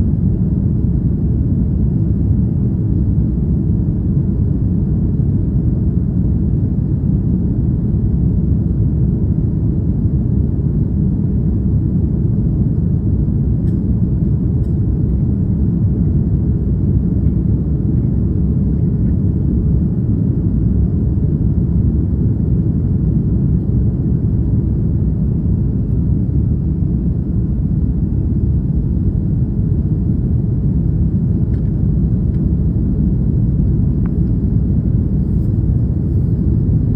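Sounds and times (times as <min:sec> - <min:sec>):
jet engines rumbling: 0:11.8 - 0:36.9.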